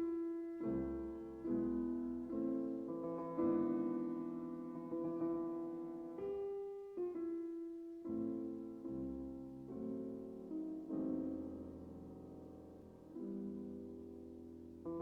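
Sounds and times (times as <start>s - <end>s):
slow classical piano piece: 0.0s - 15.0s.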